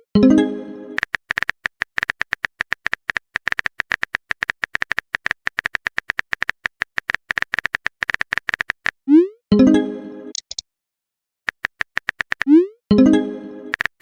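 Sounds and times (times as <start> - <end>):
typing clicks: 1.0 - 9.0, 10.3 - 10.6, 11.5 - 12.6, 13.7 - 14.0.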